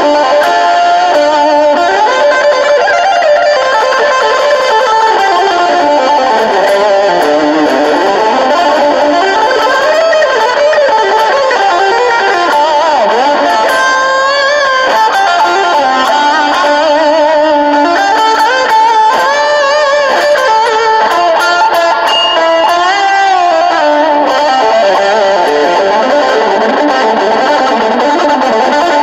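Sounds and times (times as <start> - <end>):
overdriven electric guitar lead: 0.0 - 29.0.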